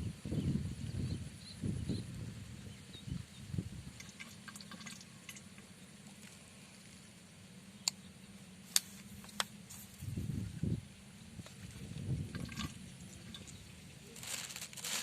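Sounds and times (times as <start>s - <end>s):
faint water sounds: 1.2s - 8.6s, 9.6s - 15.0s.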